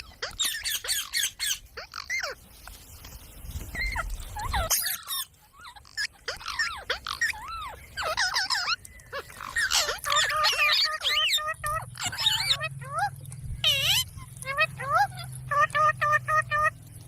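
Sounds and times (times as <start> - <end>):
parrot chattering and squawking: 0.0 - 2.4, 3.8 - 16.8.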